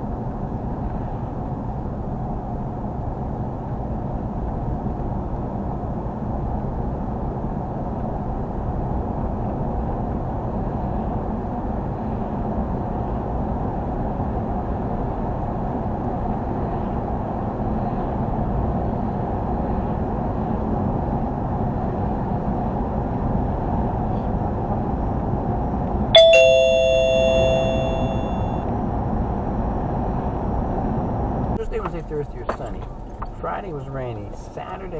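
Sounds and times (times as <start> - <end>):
two-note descending chime: 26.2 - 28.6.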